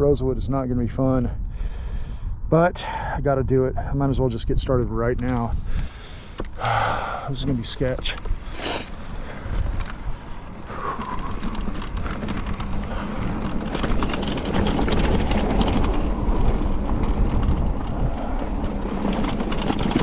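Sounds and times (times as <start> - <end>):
wind buffeting microphone: 0.0 - 20.0
bike rattling over rough trail: 4.5 - 20.0.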